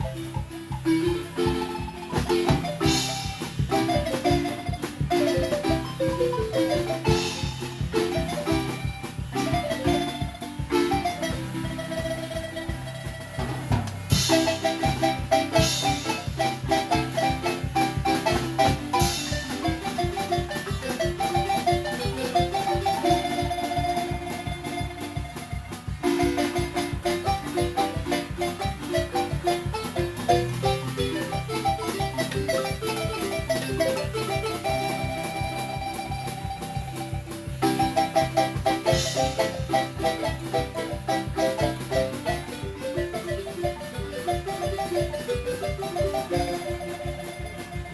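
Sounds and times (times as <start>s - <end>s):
marimba music: 0.0s - 47.9s.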